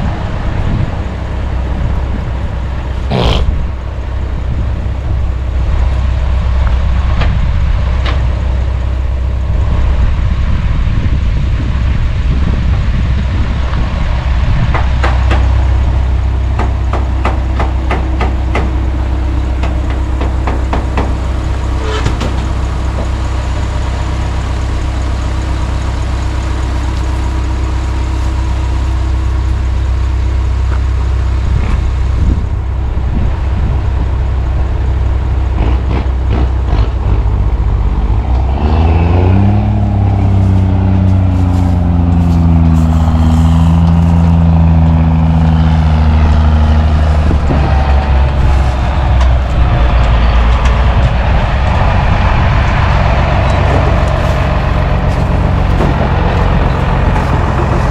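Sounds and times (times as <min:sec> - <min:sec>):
truck engine idling and revving: 0:00.0 - 0:57.9.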